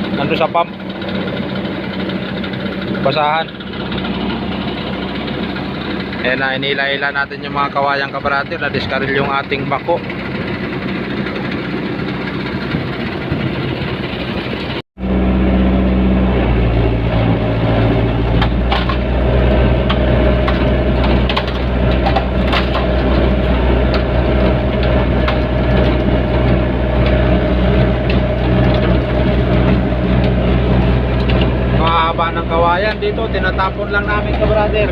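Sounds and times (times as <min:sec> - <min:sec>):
diesel engine under load: 0:00.0 - 0:34.9
bamboo cracking and snapping: 0:19.8 - 0:24.1.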